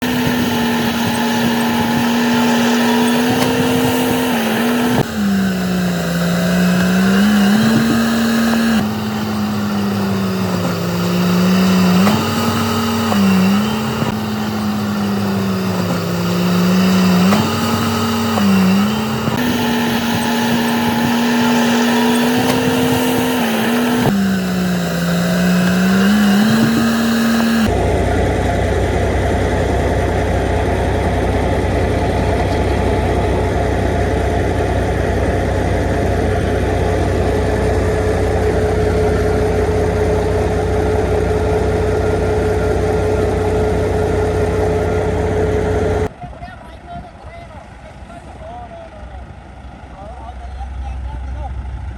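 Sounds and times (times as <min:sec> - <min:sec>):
bulldozer diesel engine under load: 0:00.0 - 0:46.2, 0:47.6 - 0:51.9.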